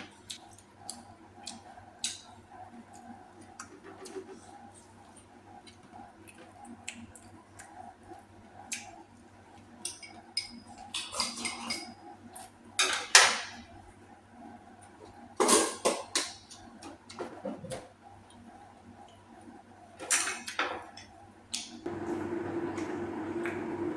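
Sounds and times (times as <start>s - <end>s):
utensils clinking on dishes: 9.8s - 12.0s
dishes clattering: 9.9s - 12.0s, 15.4s - 16.4s.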